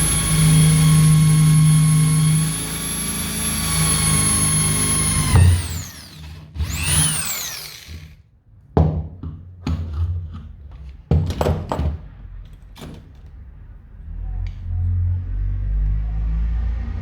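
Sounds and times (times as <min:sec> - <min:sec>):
power tool motor whining: 0:00.0 - 0:08.2
sharp knocks and clunks: 0:08.8 - 0:12.2.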